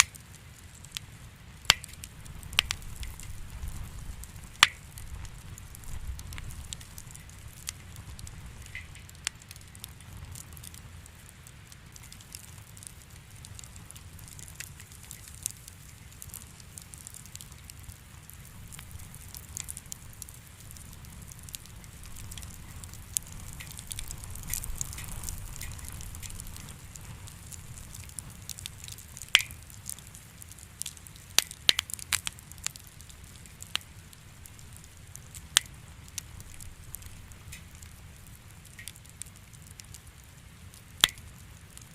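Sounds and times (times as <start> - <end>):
wood fire crackling and popping: 0.0 - 41.9
low steady rumble: 0.6 - 11.0.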